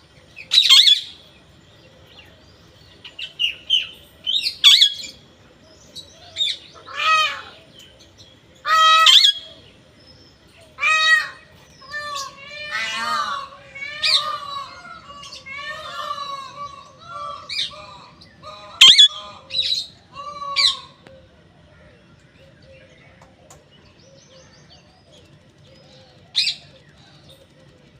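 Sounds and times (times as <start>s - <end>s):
parrot calling and chattering: 0.3s - 1.3s, 3.1s - 5.2s, 5.9s - 7.7s, 8.6s - 9.6s, 10.7s - 21.0s
parrot loud squawks: 0.5s - 1.2s, 4.3s - 5.1s, 6.4s - 7.6s, 8.6s - 9.6s, 10.8s - 21.0s.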